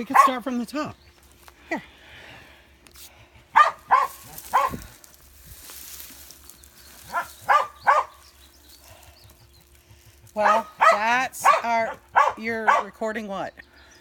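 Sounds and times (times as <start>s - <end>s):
dog barking: 0.0s - 0.5s, 3.5s - 4.8s, 7.1s - 8.2s, 10.4s - 13.0s.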